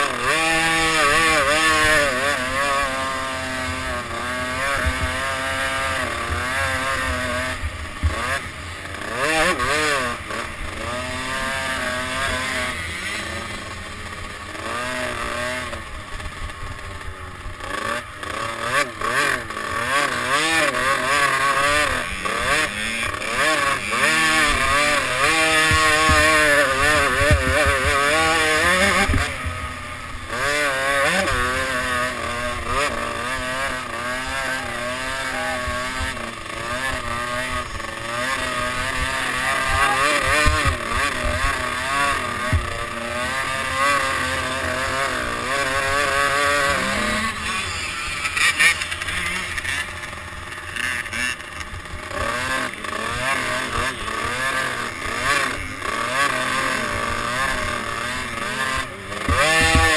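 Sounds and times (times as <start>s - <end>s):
motorbike engine revving: 0.0s - 59.9s
low knocks from bumps: 59.3s - 59.9s.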